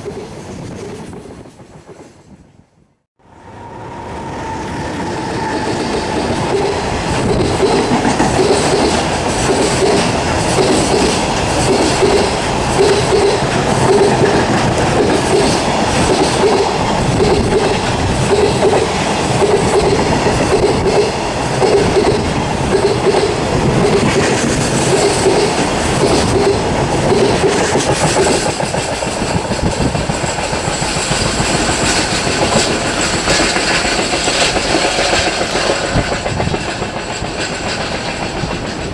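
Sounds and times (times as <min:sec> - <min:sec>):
freight train rumble: 0:00.0 - 0:38.9
wheels clacking over rail joints: 0:04.8 - 0:38.9.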